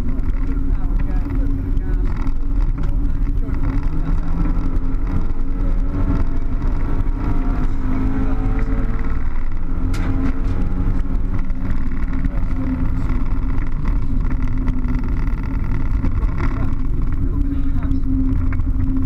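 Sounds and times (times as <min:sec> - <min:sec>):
car engine accelerating: 0:00.0 - 0:19.0
tyre and road noise: 0:00.0 - 0:19.0.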